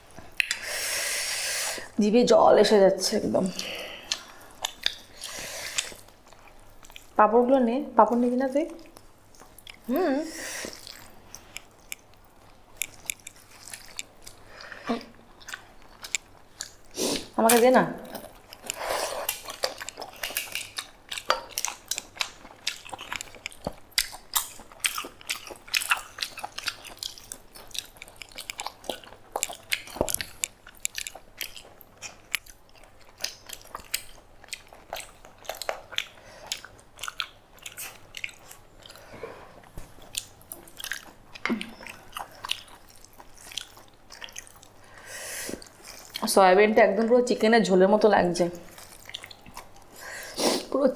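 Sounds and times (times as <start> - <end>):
crunchy chewing: 3.6 - 7.2, 8.8 - 17.4, 18.0 - 46.3, 48.6 - 50.4.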